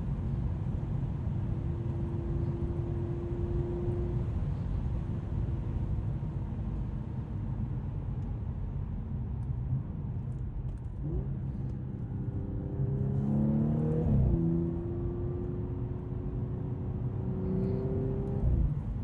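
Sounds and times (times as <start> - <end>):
road noise: 0.0 - 19.0
car engine accelerating: 10.7 - 19.0.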